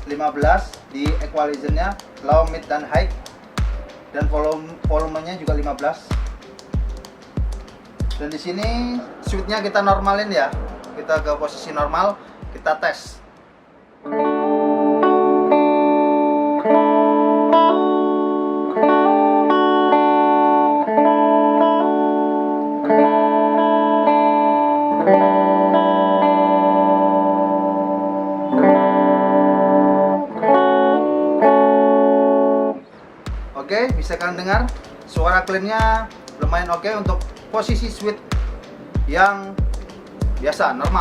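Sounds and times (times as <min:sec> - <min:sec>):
clean electric guitar chords: 0:14.0 - 0:41.0.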